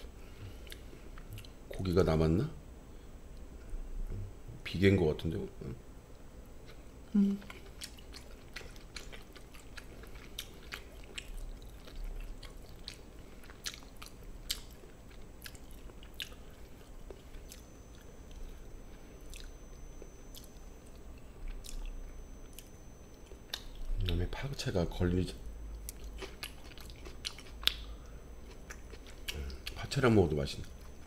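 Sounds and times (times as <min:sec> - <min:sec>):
person chewing with wet smacks: 0:00.0 - 0:01.8, 0:07.4 - 0:18.6, 0:19.2 - 0:24.5, 0:25.6 - 0:31.0.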